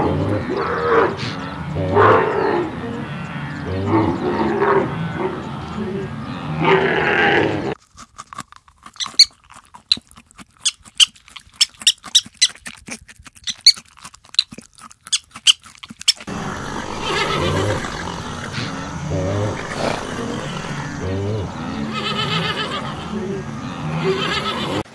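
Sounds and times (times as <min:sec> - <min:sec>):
porcupine chewing crunchily: 0:07.8 - 0:23.6
short animal call: 0:16.3 - 0:24.8.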